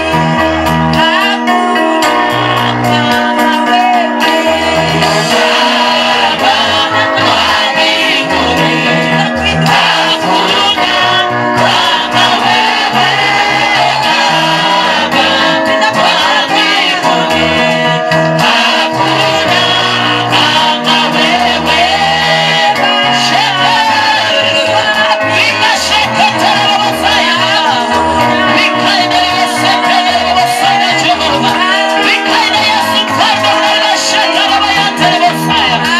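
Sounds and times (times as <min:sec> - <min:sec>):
gospel singing over a band: 0:00.0 - 0:35.9
moving bass line: 0:04.2 - 0:31.6.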